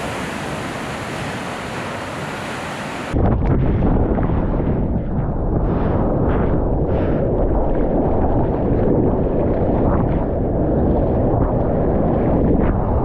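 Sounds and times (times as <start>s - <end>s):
big-wave surf and whitewater: 0.0s - 3.2s
wind buffeting microphone: 0.0s - 13.0s.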